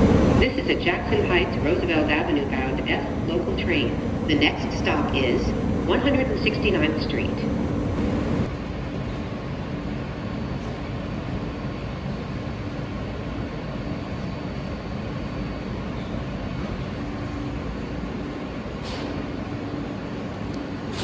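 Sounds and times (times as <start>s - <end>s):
train wheels rumbling on track: 0.0s - 9.4s
constant low hum: 0.0s - 21.0s.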